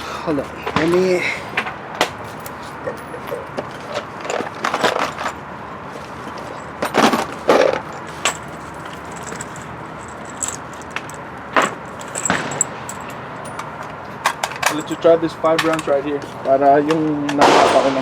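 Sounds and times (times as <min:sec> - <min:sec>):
metallic clinks of cartridges: 0:11.9 - 0:13.7.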